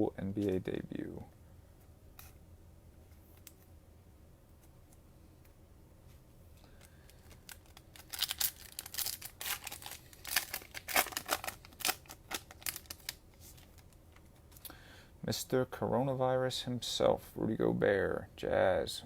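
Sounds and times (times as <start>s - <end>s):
cellophane wrapper crinkling: 6.6s - 14.6s.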